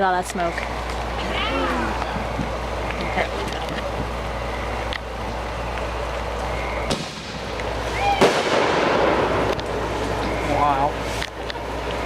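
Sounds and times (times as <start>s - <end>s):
fireworks crackling: 0.0s - 12.0s
fireworks bangs: 6.8s - 10.6s.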